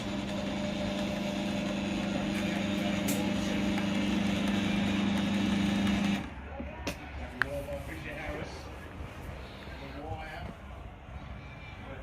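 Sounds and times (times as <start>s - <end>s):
garage door opener motor hum: 0.0s - 6.3s.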